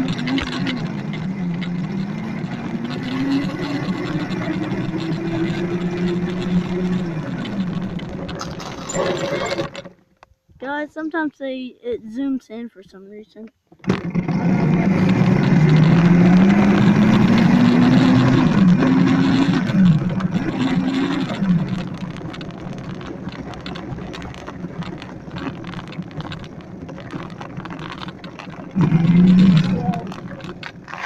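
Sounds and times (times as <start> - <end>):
electric motor whining: 0.0 - 8.4, 13.8 - 22.3, 28.7 - 31.0
scattered clicks: 0.0 - 10.4, 14.9 - 31.0
rough rolling noise: 0.0 - 11.2, 13.7 - 31.0.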